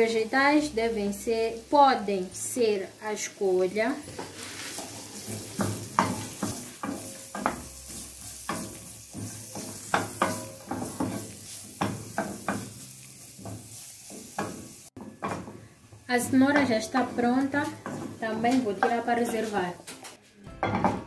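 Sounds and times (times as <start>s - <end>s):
vegetables sizzling in pan: 0.0s - 20.1s
wooden spoon scraping pan: 4.0s - 19.7s.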